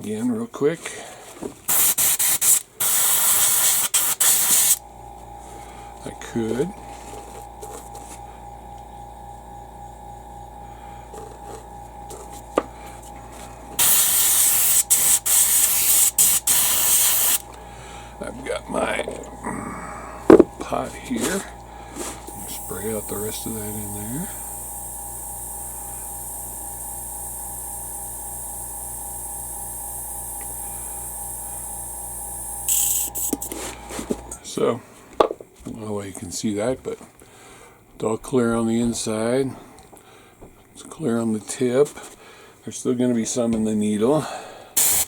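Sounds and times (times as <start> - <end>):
airbrush spraying hiss: 1.7 - 4.8, 13.8 - 17.5, 22.2 - 34.2, 44.8 - 45.0
airbrush compressor pulsing: 1.7 - 34.4, 44.8 - 45.0
low steady hum: 4.3 - 34.8.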